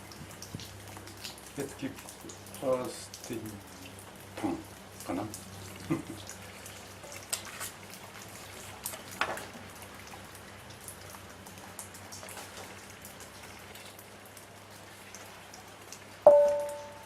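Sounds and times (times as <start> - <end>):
light crackling patter: 0.0 - 17.0
ringing metallic strike: 16.3 - 17.0.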